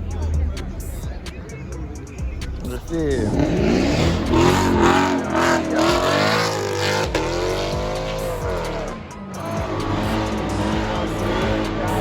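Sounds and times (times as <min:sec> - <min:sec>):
car engine revving: 0:00.0 - 0:12.0
tires squealing: 0:00.0 - 0:12.0.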